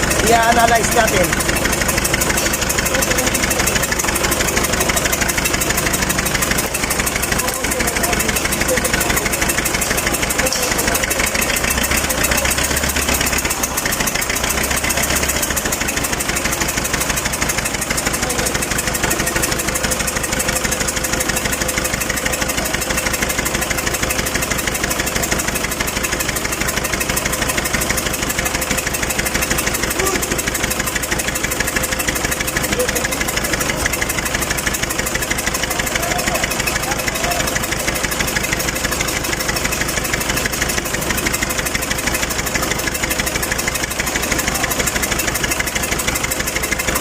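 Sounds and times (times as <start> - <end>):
diesel engine idling: 0.0 - 47.0.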